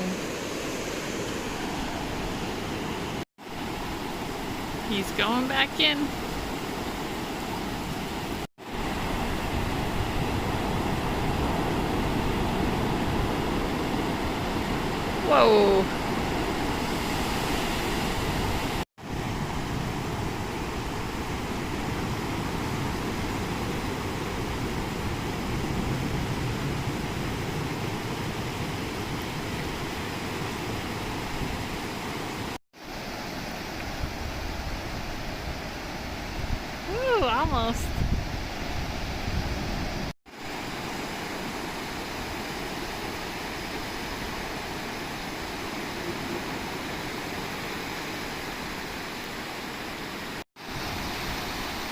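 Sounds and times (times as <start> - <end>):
ocean surf breaking: 0.0 - 32.9, 38.3 - 51.9.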